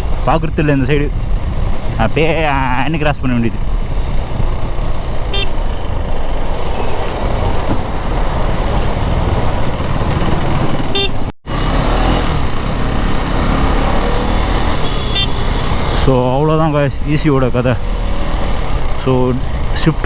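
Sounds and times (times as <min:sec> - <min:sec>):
motorcycle engine rumble: 0:00.0 - 0:20.0
road noise: 0:00.0 - 0:20.0.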